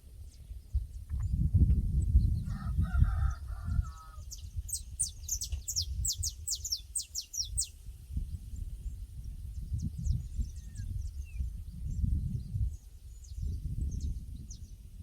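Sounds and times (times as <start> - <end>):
rooster crowing: 2.5 - 4.2
small bird chirping: 3.9 - 14.8.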